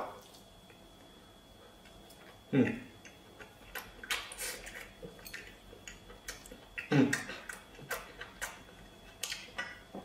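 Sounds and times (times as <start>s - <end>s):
person chewing and lip-smacking: 1.8s - 10.0s
person humming mm: 2.5s - 2.9s, 6.8s - 7.6s.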